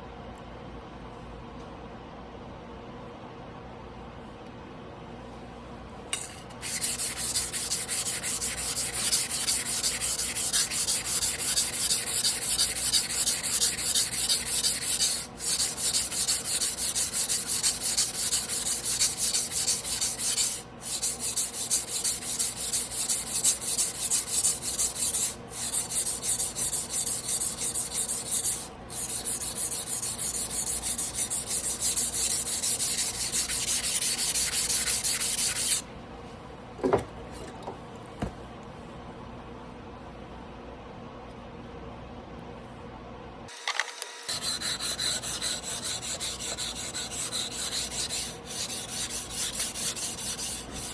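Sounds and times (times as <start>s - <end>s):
knife blade scraping on whetstone: 6.2s - 35.8s, 44.3s - 50.9s.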